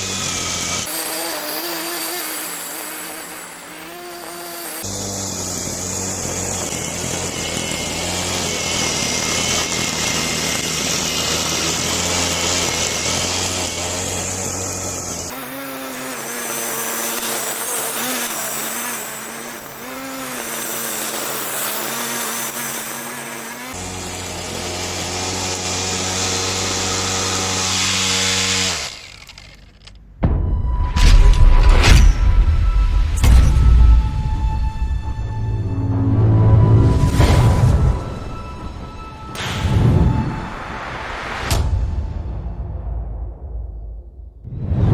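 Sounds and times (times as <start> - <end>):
angle grinder motor running: 0.0 - 30.1.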